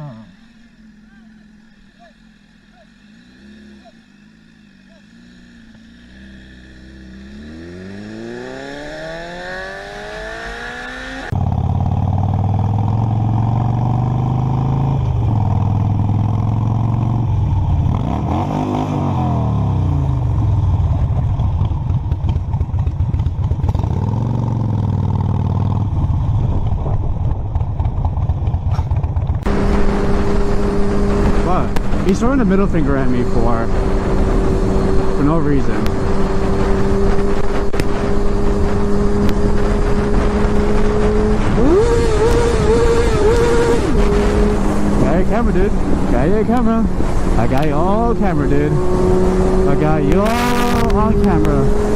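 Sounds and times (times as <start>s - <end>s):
motorcycle engine accelerating: 0.0s - 51.9s
wind noise: 14.3s - 51.9s.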